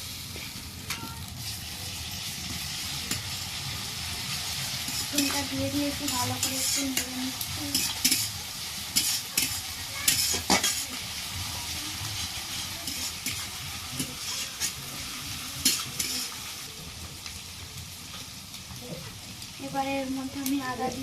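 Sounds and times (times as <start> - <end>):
onion and garlic sizzling in oil: 0.0 - 21.0
utensil scraping pan: 4.8 - 7.1, 9.0 - 11.0, 12.4 - 14.8, 15.6 - 16.4.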